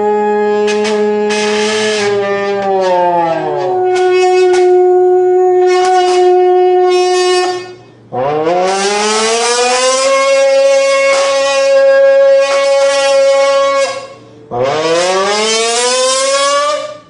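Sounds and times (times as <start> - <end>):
can metal buzzing: 0.0 - 17.0
voice humming into beer can: 2.1 - 7.8.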